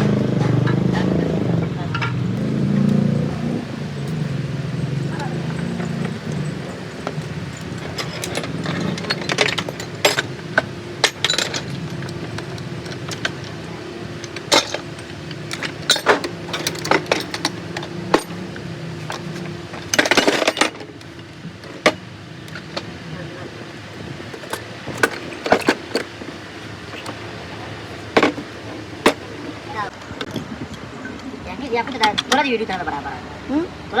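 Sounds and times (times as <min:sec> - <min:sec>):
steady background hum: 0:00.0 - 0:34.0
metal rattling: 0:01.9 - 0:30.5
metal tools clinking: 0:03.7 - 0:33.0.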